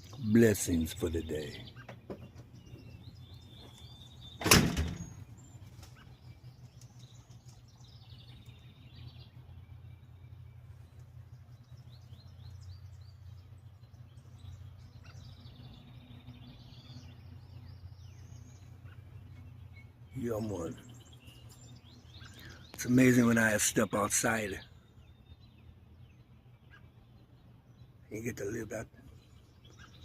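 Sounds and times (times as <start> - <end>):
low background rumble: 0.0 - 30.0
small birds chirping: 0.0 - 30.0
loud thump: 4.4 - 5.1.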